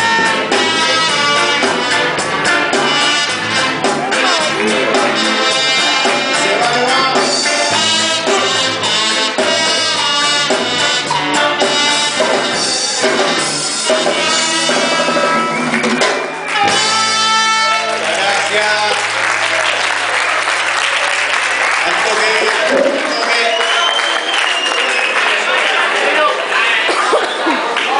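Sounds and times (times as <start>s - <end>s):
music with brass drums and singing: 0.0s - 18.1s.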